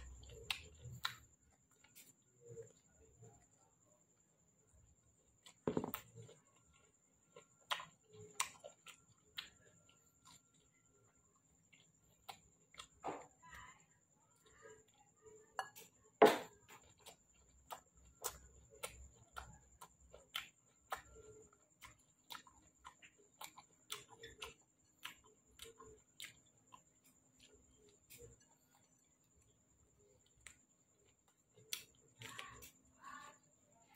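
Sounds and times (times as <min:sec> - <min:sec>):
wet chewing smacks and clicks: 0:00.0 - 0:03.4, 0:05.4 - 0:13.0, 0:16.7 - 0:32.8.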